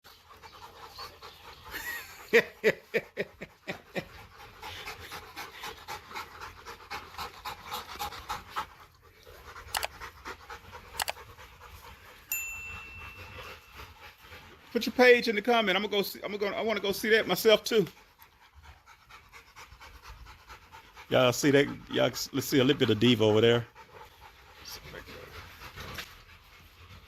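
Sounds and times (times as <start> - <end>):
dog panting: 0.0 - 27.0.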